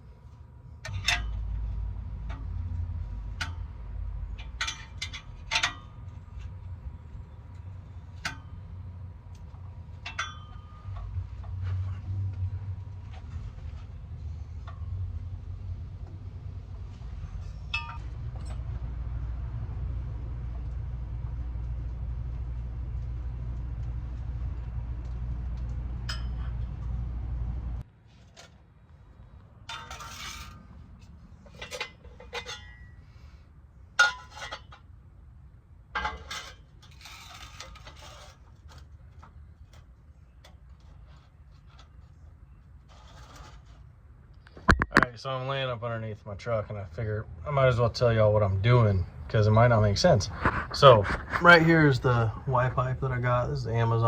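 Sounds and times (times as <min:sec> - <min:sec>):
low mechanical hum: 0:00.0 - 0:54.0
low rumble: 0:10.7 - 0:27.9.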